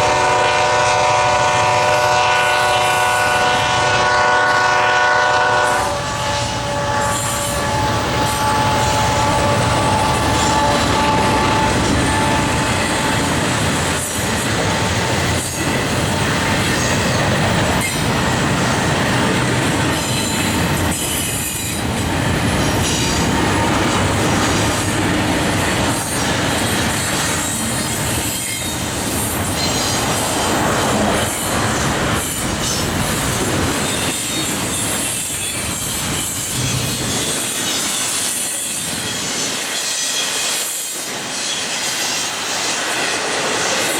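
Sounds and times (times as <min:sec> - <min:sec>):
train horn chord: 0:00.0 - 0:13.1
freight train rumbling past: 0:00.0 - 0:43.9
high wheel squeal: 0:05.7 - 0:13.5.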